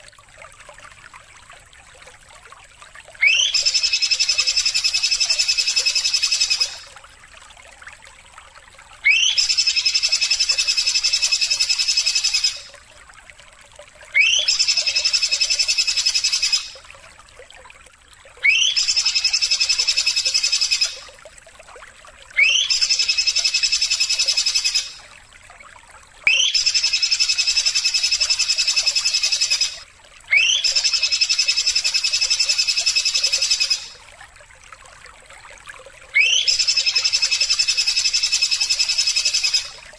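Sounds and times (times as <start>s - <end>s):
high buzzing bird trill: 3.2s - 6.9s, 9.1s - 12.7s, 14.2s - 16.8s, 18.4s - 21.0s, 22.4s - 25.0s, 26.3s - 34.0s, 36.2s - 39.8s.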